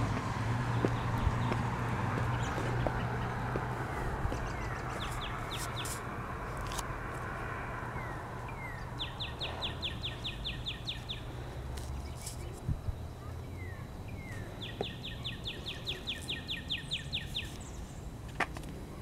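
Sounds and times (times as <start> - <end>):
songbird singing: 0.0 - 7.0, 7.8 - 19.0
steady background noise: 0.0 - 19.0.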